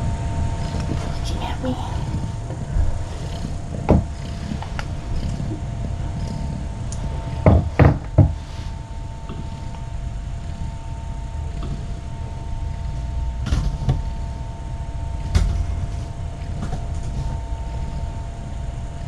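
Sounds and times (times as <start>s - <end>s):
faint steady tones: 0.0s - 19.0s
low room noise: 0.0s - 19.0s
short knocks: 7.4s - 8.4s.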